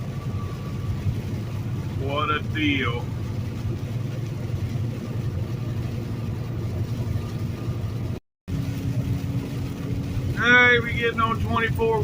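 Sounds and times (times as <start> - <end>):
road noise: 0.0 - 12.0
truck diesel engine drone: 0.0 - 12.0.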